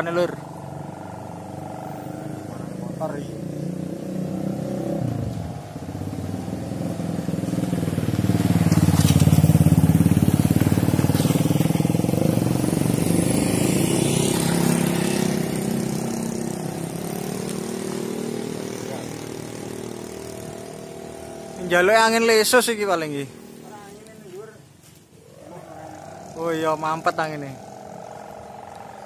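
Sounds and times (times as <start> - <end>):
motorcycle engine passing by: 0.0 - 29.0.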